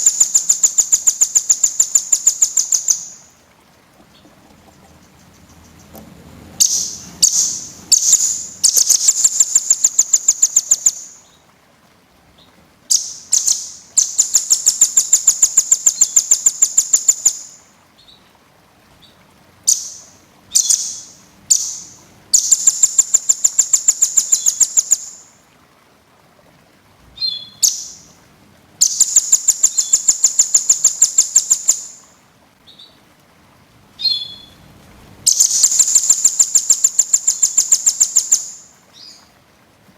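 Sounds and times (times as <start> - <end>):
bird trilling song: 0.0 - 3.3, 6.6 - 11.4, 12.4 - 18.2, 19.0 - 25.4, 27.2 - 28.1, 28.8 - 33.0, 34.0 - 34.6, 35.3 - 39.3.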